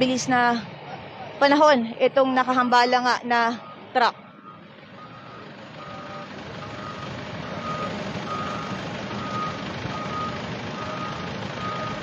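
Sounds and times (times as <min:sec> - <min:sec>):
heavy vehicle engines rumbling: 0:00.0 - 0:12.0
reversing alarm beeping: 0:03.4 - 0:12.0.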